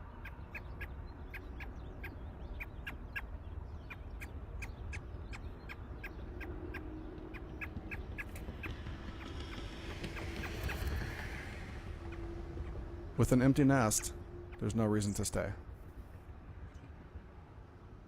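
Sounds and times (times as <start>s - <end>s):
robin chip calls: 0.2s - 9.6s.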